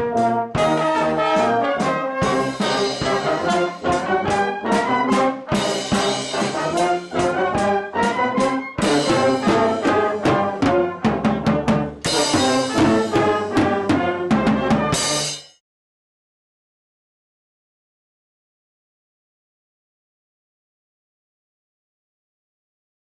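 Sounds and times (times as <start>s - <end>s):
brass horns playing: 0.0s - 15.5s
drum hits: 2.2s - 15.6s.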